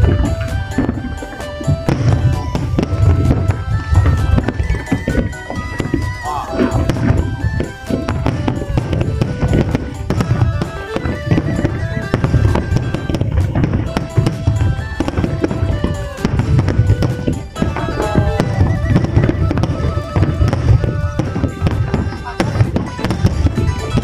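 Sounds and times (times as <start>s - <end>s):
fireworks bursting: 0.0s - 24.0s
music playing: 0.0s - 24.0s.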